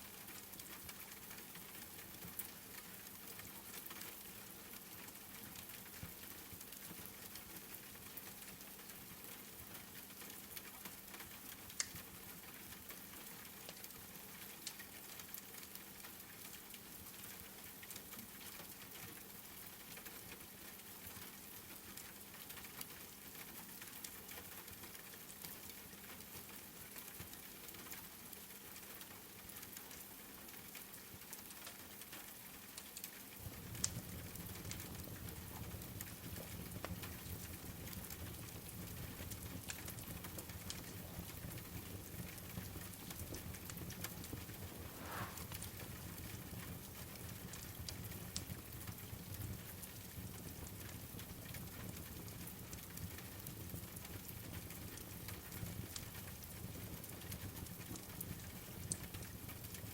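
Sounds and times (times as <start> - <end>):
wood fire crackling and popping: 9.9 - 16.8, 20.0 - 59.9
rain hissing: 38.1 - 47.8.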